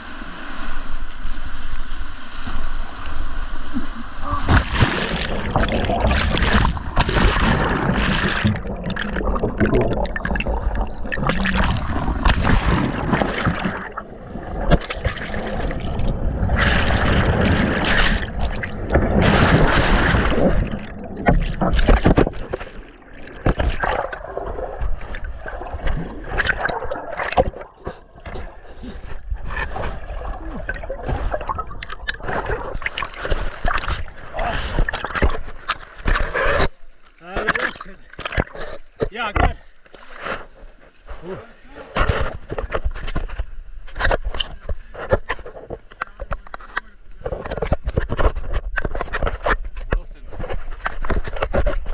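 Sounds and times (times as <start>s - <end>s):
whitewater rushing and splashing: 0.0s - 27.6s.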